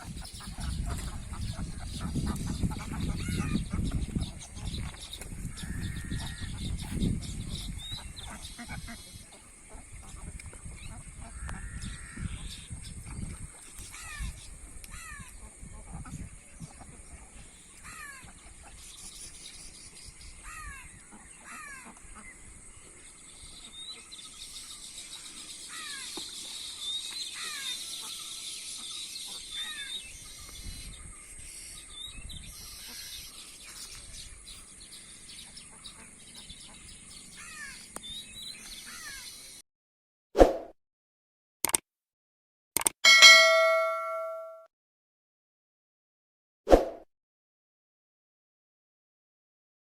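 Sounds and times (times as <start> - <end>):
sharp loud click: 41.6 - 41.8, 42.8 - 44.4
bird falling calls: 43.1 - 44.5
faint high chirping: 43.1 - 44.6.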